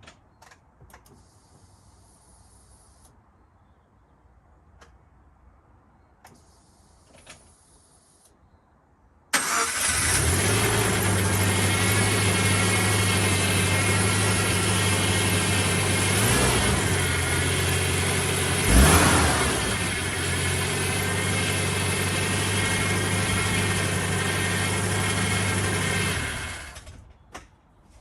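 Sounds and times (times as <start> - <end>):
engine revving: 9.4 - 26.9
car engine idling: 9.4 - 27.0.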